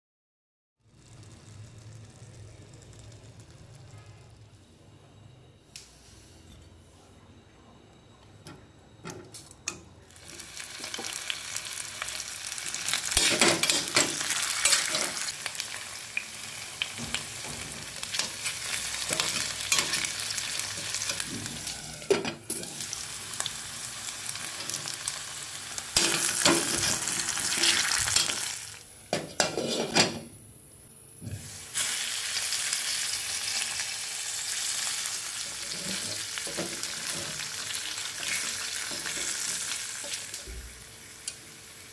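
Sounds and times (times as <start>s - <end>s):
potatoes sizzling in hot oil: 0.8s - 3.9s, 10.1s - 28.9s, 31.4s - 41.9s
spatula scraping a pan: 29.2s - 30.2s, 35.5s - 37.4s.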